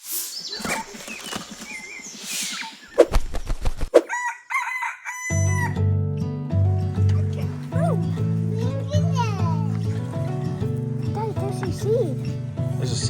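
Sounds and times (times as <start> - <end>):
chickens clucking: 0.4 - 3.0
rooster crowing: 4.0 - 5.8.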